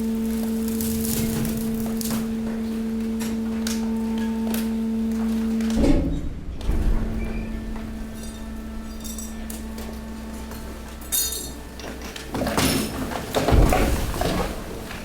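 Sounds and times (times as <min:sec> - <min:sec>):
hydraulic pump hum: 0:00.0 - 0:15.0
glass and debris crunching: 0:00.2 - 0:02.4.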